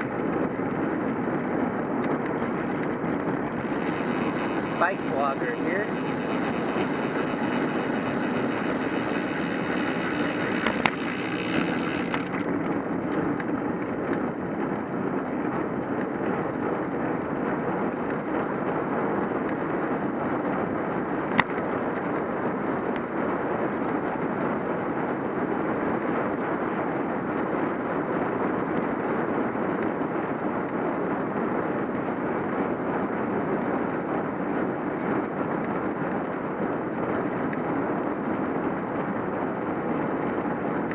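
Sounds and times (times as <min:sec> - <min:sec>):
wind and bicycle road noise: 0:00.0 - 0:40.9
sharp clicks: 0:09.1 - 0:12.5.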